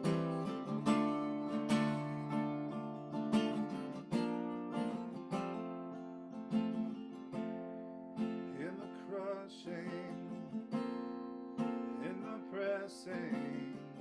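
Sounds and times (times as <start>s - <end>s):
strummed acoustic guitar: 0.0s - 14.0s
person singing worship song: 12.0s - 14.0s.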